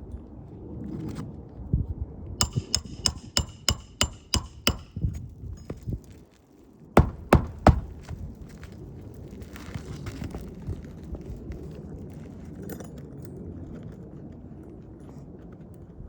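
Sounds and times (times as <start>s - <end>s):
hammer striking roofing nails: 2.4s - 5.8s, 7.0s - 8.2s.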